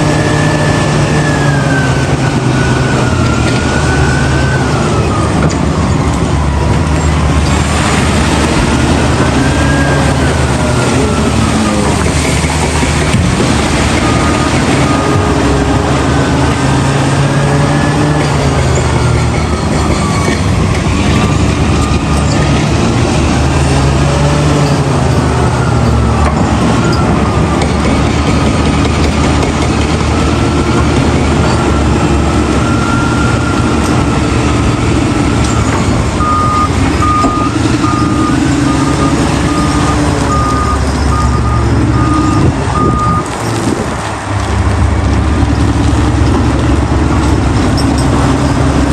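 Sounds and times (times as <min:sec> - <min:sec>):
diesel machinery engine revving: 0:00.0 - 0:48.9
reversing alarm beeping: 0:13.9 - 0:16.3, 0:16.9 - 0:22.7, 0:24.0 - 0:29.3, 0:31.4 - 0:43.3.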